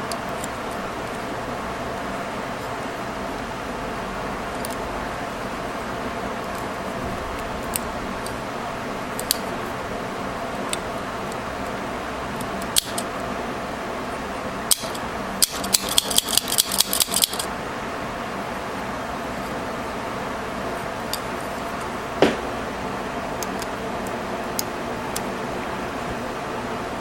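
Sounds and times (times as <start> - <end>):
staple remover jaws clicking: 14.7 - 17.5.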